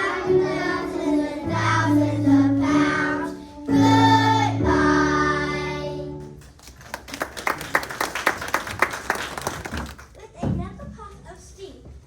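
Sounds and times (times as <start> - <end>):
children singing: 0.0 - 6.2
hand clapping: 6.2 - 10.1.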